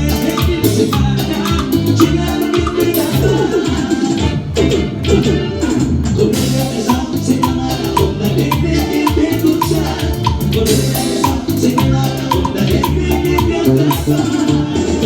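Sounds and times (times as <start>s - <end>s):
live latin dance band: 0.0s - 15.0s
bright repeating tick: 6.9s - 14.1s.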